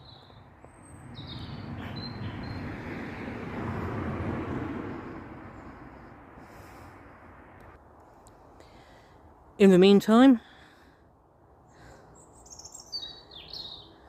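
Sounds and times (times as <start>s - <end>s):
bird chirping: 0.0s - 2.7s, 11.9s - 14.0s
road vehicle passing: 0.0s - 8.5s.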